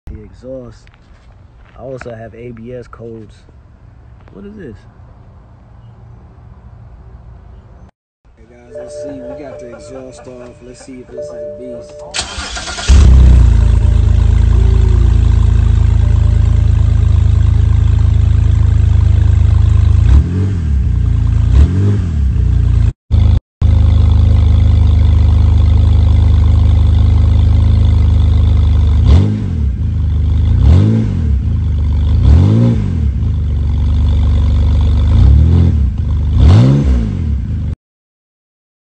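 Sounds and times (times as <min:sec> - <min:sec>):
car engine idling and revving: 0:08.9 - 0:37.8.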